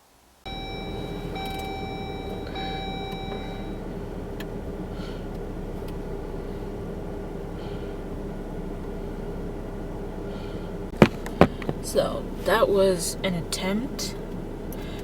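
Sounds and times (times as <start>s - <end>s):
car engine rumbling: 0.0s - 15.0s
electronic chime tone: 0.5s - 3.8s.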